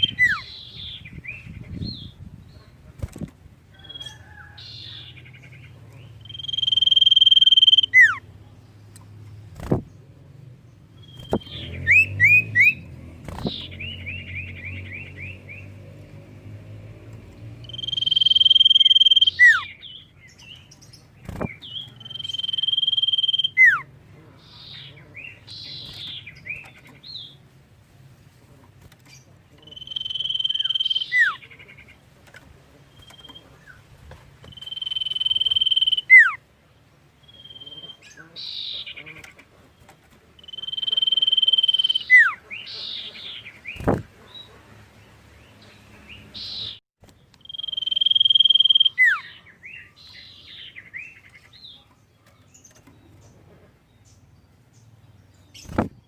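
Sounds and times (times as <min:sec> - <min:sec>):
bird whistling: 0:00.0 - 0:00.7, 0:06.2 - 0:08.2, 0:11.0 - 0:12.8, 0:17.6 - 0:19.8, 0:22.0 - 0:23.8, 0:29.7 - 0:31.4, 0:34.5 - 0:36.4, 0:40.4 - 0:43.0, 0:47.4 - 0:49.4
bird chattering notes: 0:00.0 - 0:02.0, 0:04.7 - 0:08.2, 0:17.6 - 0:20.1, 0:21.3 - 0:27.3, 0:29.2 - 0:32.0, 0:34.5 - 0:36.4, 0:40.4 - 0:44.1, 0:47.4 - 0:49.4.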